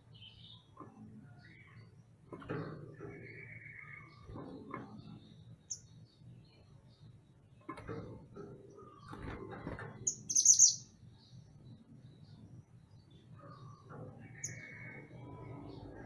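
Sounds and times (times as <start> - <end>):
bird chirps and calls: 10.0 - 11.0, 13.0 - 16.0.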